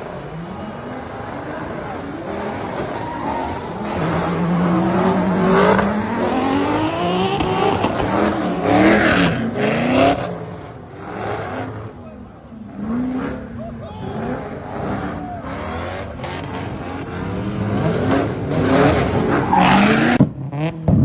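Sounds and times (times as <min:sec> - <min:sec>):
tire squeal: 0:00.0 - 0:20.2
car engine revving hard: 0:00.0 - 0:21.0.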